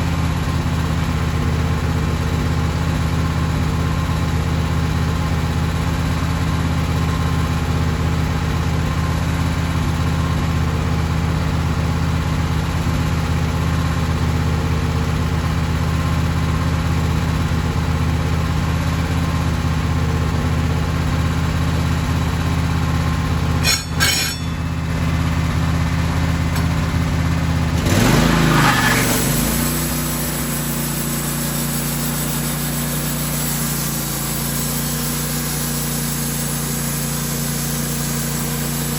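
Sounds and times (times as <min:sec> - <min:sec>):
sawmill engine running: 0:17.1 - 0:38.9.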